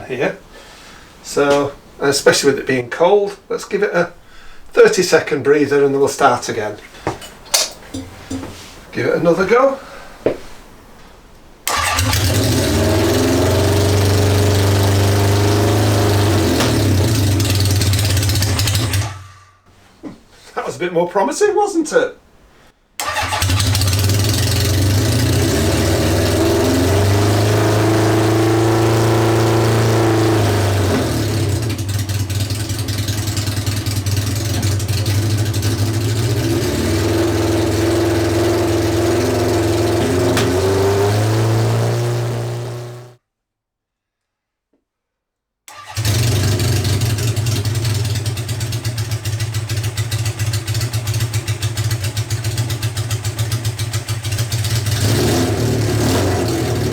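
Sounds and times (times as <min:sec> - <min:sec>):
motorcycle engine revving: 0:11.7 - 0:19.5, 0:23.0 - 0:43.2, 0:45.7 - 0:56.9.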